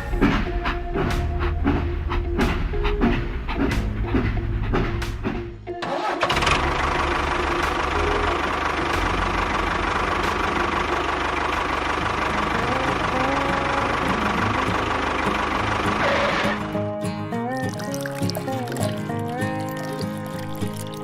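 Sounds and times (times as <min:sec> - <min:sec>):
small engine idling: 0:05.9 - 0:16.6.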